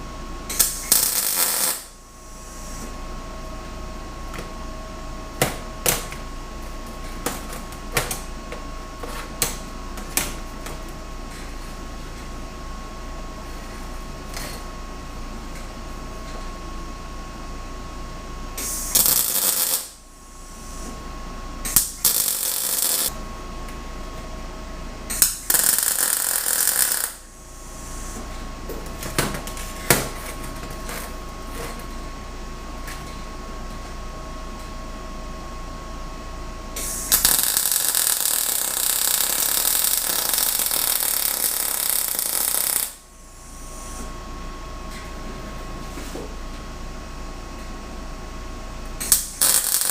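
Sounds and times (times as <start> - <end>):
steady shop hum: 0.0 - 49.9
welding arc crackling: 0.5 - 2.0, 18.7 - 20.0, 21.7 - 23.2, 25.2 - 27.3, 36.9 - 43.0, 49.0 - 49.9.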